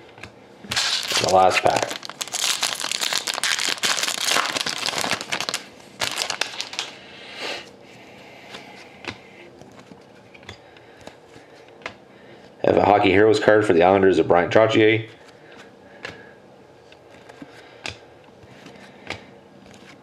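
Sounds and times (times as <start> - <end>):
cards being handled: 0.7 - 7.0
wrapper crinkling: 0.7 - 7.0.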